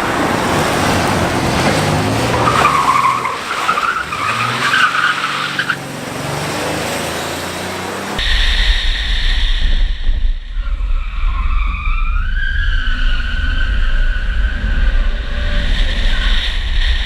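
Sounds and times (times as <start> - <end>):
car engine revving: 0.0 - 8.5
tire squealing: 0.0 - 8.6, 10.6 - 17.0.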